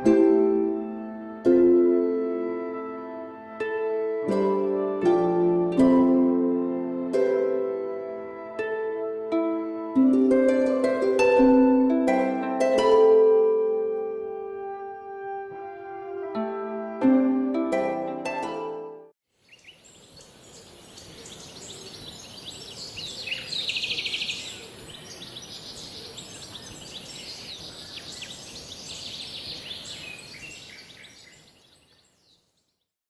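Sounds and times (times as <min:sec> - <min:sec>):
steady high hiss: 0:19.4 - 0:30.6
loud rapid bird trill: 0:19.4 - 0:32.4
birds chirping and calling: 0:19.5 - 0:32.4.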